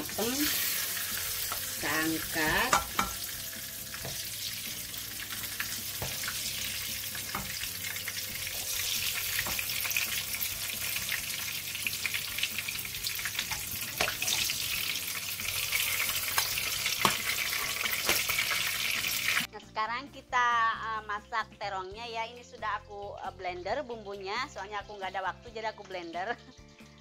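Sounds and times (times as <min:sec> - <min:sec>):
food sizzling in hot oil: 0:00.0 - 0:19.5
metal tongs clicking on pan: 0:02.5 - 0:03.3.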